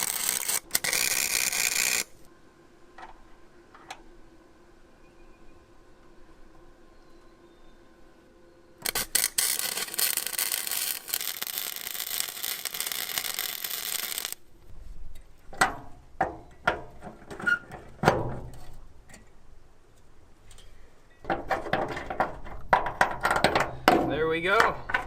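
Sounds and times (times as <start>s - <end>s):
arc welder crackling hiss: 0.0s - 2.3s, 8.8s - 14.4s.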